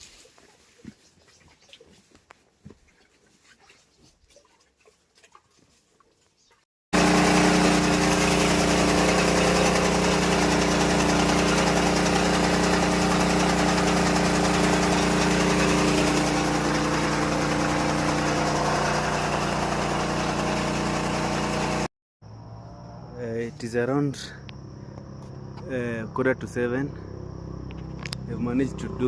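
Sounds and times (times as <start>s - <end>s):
engine running steadily: 7.0s - 21.9s.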